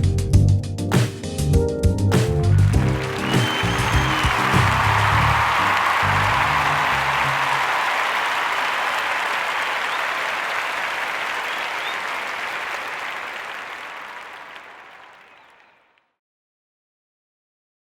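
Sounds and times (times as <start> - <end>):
crowd applause: 2.4 - 15.9.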